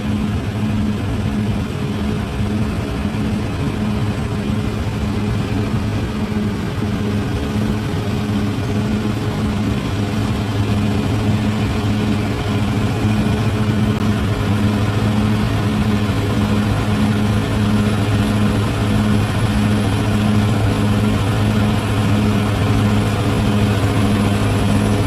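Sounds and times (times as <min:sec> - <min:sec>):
bulldozer diesel engine: 0:00.0 - 0:25.0.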